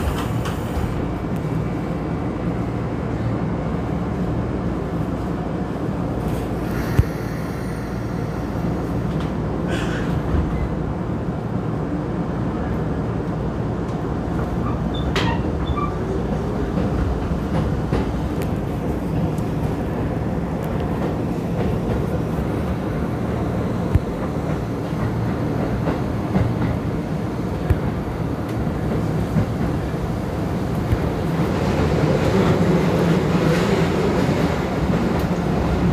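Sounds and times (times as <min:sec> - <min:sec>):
electric train rumbling: 0:00.0 - 0:35.9.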